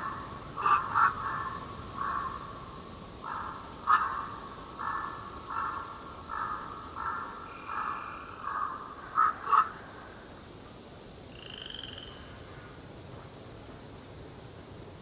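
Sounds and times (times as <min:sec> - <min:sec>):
bird calling: 0:00.0 - 0:02.5, 0:03.2 - 0:10.0.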